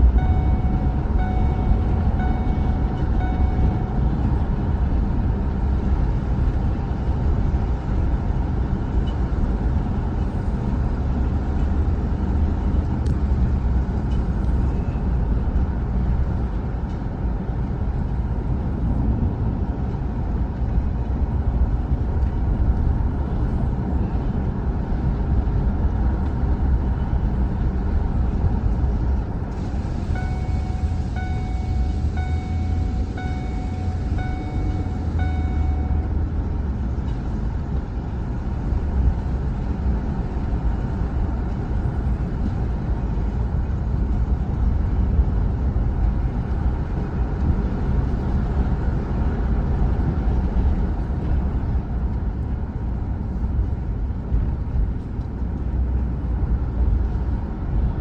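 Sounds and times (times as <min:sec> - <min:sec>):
short repeating beep: 0:00.0 - 0:04.2, 0:30.0 - 0:36.2
truck engine and road rumble: 0:00.0 - 0:58.0.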